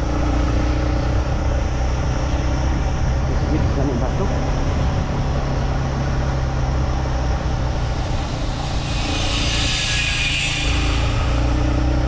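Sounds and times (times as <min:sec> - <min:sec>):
hissing rush: 0:07.7 - 0:12.0.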